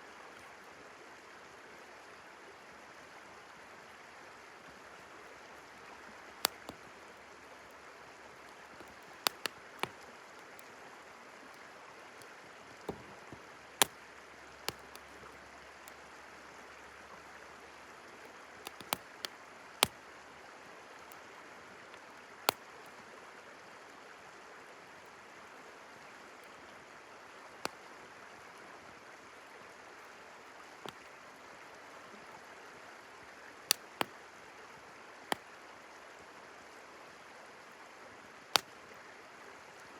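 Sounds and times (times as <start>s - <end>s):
campfire crackling and popping: 6.3s - 7.7s, 8.4s - 10.7s, 12.2s - 16.0s, 18.2s - 20.1s, 22.4s - 22.8s, 30.8s - 31.2s, 33.7s - 34.2s, 38.5s - 38.8s.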